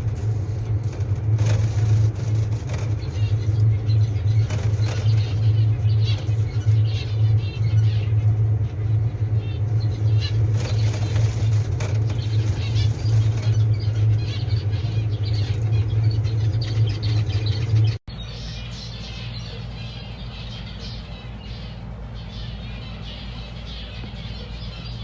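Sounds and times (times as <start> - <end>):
wings fluttering: 0.0 - 18.0
loud steady low hum: 0.0 - 25.0
small birds chirping: 0.0 - 25.0.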